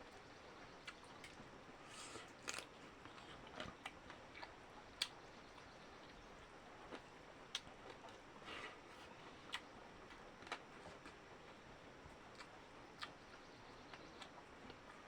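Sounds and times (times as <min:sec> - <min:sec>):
person chewing food: 0:00.8 - 0:05.1, 0:06.9 - 0:11.6, 0:12.3 - 0:13.2.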